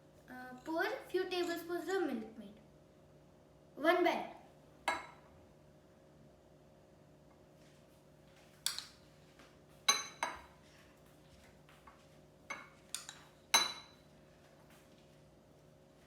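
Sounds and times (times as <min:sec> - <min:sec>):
metal spoon clinking against bowl: 0:09.9 - 0:10.5, 0:12.5 - 0:14.0.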